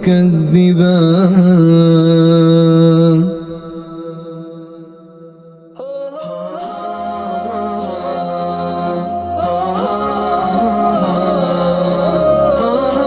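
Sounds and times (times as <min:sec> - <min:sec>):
man reciting melodically: 0:00.0 - 0:04.5.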